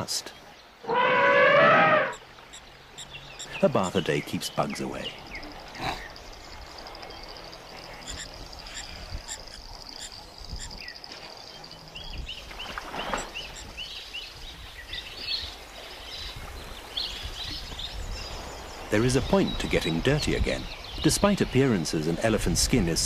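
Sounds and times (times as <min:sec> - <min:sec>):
high-pitched insect trill: 0:05.0 - 0:14.3.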